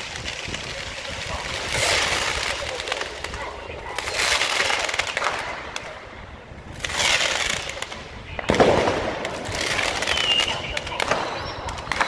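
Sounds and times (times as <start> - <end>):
fireworks crackling: 0.0 - 12.0
firework sharp bang: 6.8 - 12.0.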